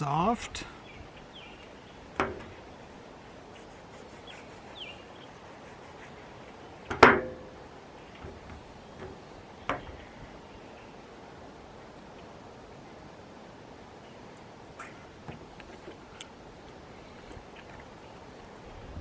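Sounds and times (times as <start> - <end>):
faint bird chirps: 3.8 - 6.9.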